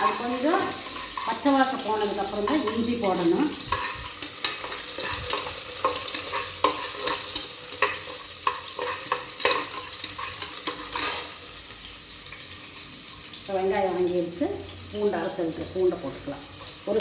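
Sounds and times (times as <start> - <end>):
spatula scraping and knocking pot: 0.0 - 11.3
shallots sizzling in oil: 0.0 - 17.0.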